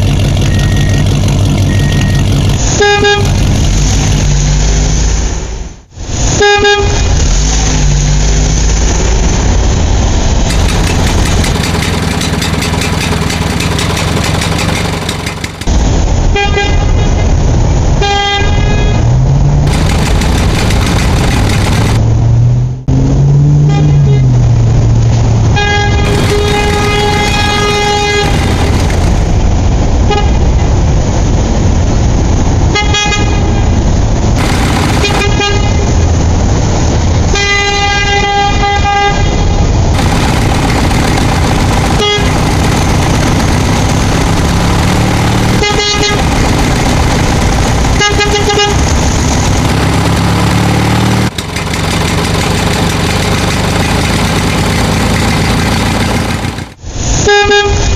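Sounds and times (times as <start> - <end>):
vehicle engine running: 0.0 - 5.0, 7.1 - 16.3, 19.2 - 32.6, 34.0 - 37.4, 39.6 - 56.9
horn honking: 0.4 - 3.6, 6.3 - 7.3, 18.0 - 22.0, 23.6 - 24.4, 25.5 - 29.4, 30.0 - 30.5, 34.4 - 36.2, 37.2 - 43.8, 44.4 - 51.4.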